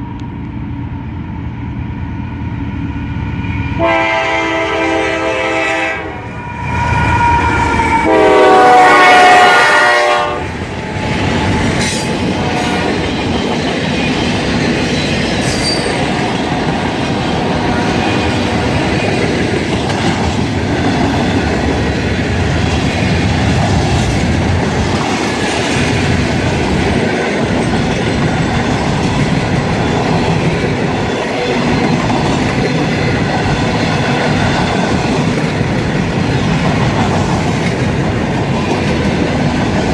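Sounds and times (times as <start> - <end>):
train rumbling past: 0.0 - 39.9
train horn: 3.8 - 10.6
wheels clacking on rails: 10.5 - 39.9.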